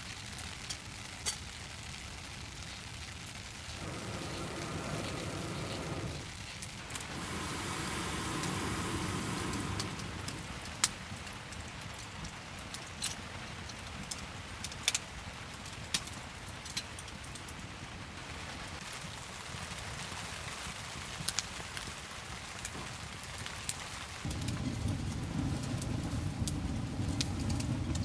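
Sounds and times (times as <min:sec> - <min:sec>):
steady rain falling: 0:00.0 - 0:28.0
raindrop taps: 0:03.8 - 0:06.3, 0:07.0 - 0:11.0, 0:24.3 - 0:28.0.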